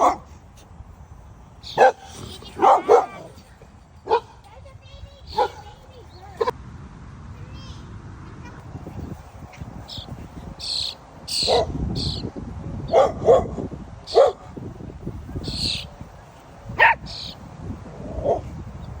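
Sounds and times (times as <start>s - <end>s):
dog barking: 0.0s - 0.3s, 1.7s - 3.4s, 4.0s - 4.4s, 5.3s - 5.8s, 11.4s - 11.7s, 12.9s - 14.5s, 16.8s - 17.3s, 18.2s - 18.5s
high-pitched squeaky cries: 8.9s - 12.3s, 15.4s - 17.4s.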